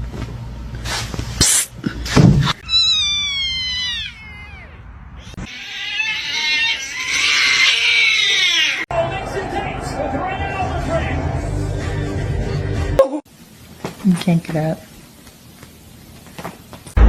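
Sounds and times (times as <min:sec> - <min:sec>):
cat meowing: 0:02.6 - 0:08.9.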